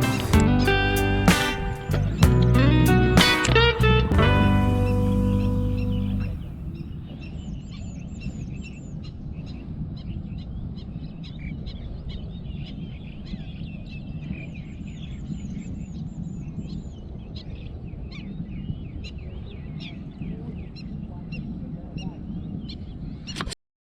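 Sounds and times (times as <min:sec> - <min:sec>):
quick high repeated bird notes: 0:00.0 - 0:06.5
steady low rumble: 0:00.0 - 0:06.8
birds chirping: 0:00.0 - 0:23.5.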